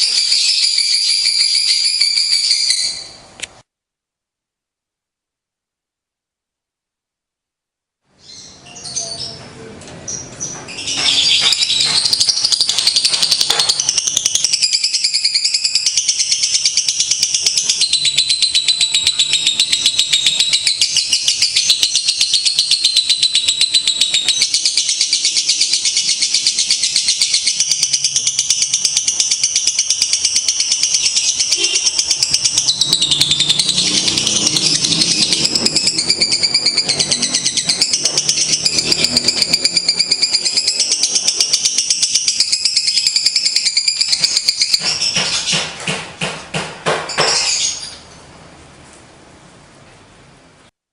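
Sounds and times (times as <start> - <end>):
lovebird chattering trill: 10.4 - 45.7.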